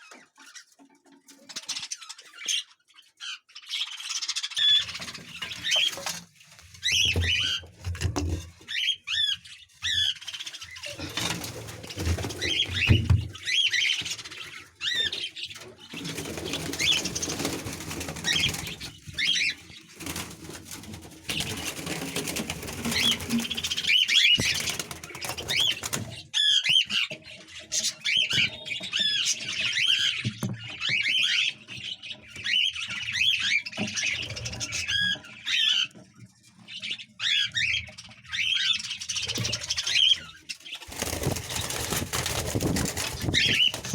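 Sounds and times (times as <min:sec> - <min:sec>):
budgerigars chirping: 0:12.4 - 0:20.0, 0:42.5 - 0:43.9
rustling noise: 0:40.8 - 0:43.9.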